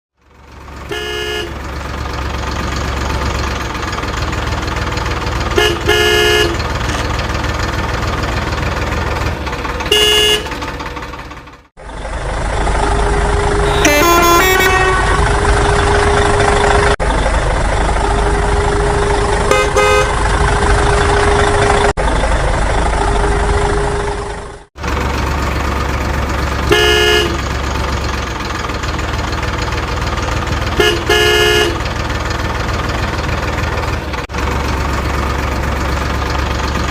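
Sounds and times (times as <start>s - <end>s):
engine running: 0.1s - 36.9s
short horn honks: 0.9s - 1.6s, 5.6s - 7.0s, 9.9s - 10.6s, 13.6s - 15.5s, 19.5s - 20.2s, 26.7s - 27.4s, 30.8s - 31.8s.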